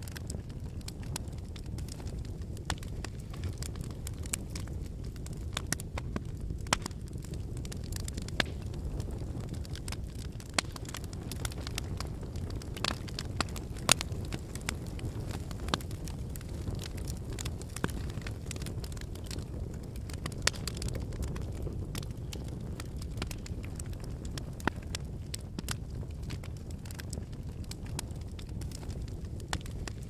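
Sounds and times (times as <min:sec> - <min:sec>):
bonfire crackling and popping: 0:00.0 - 0:30.0.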